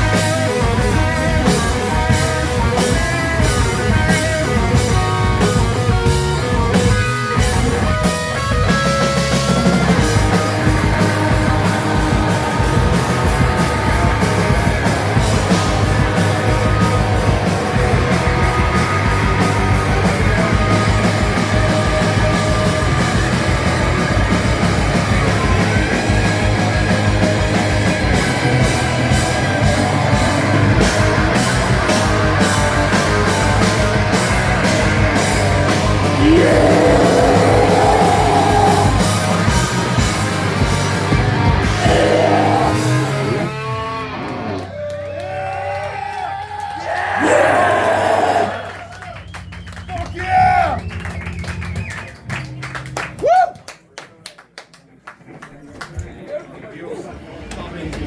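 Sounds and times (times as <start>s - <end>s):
drums fast steady beat: 0.0s - 43.4s
bass and electric guitars: 0.0s - 45.8s, 46.8s - 53.3s
shouted vocal: 36.0s - 39.2s, 41.6s - 43.5s, 46.6s - 49.0s.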